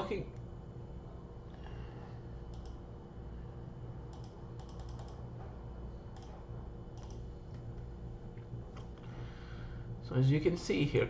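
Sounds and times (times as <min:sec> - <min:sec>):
steady low hum: 0:00.0 - 0:11.0
keyboard keys clicking: 0:04.1 - 0:05.2.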